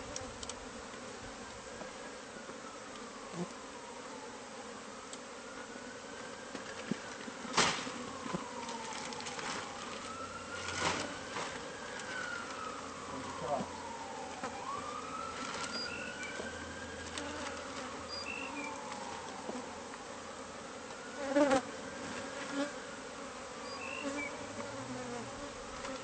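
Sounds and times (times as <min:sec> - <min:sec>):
bees buzzing: 0:00.0 - 0:26.0
faint wailing tone: 0:07.8 - 0:25.8.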